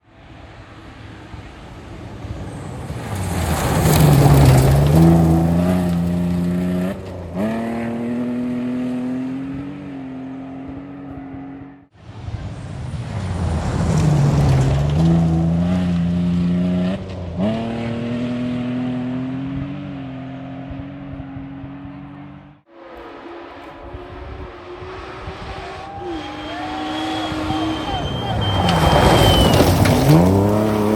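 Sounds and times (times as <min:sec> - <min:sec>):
rally car engine at full throttle: 0:00.0 - 0:30.9
gravel spraying: 0:01.7 - 0:07.1, 0:24.6 - 0:30.9.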